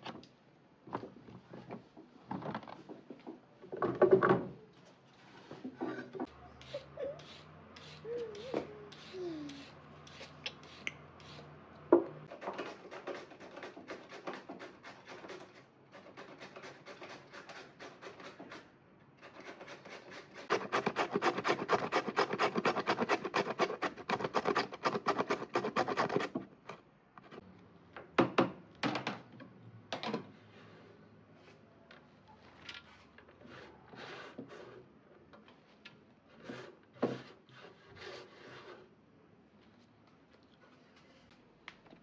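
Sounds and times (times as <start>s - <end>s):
scraping strokes against wood: 6.6s - 11.5s, 12.2s - 26.4s, 33.4s - 34.9s, 36.3s - 38.9s.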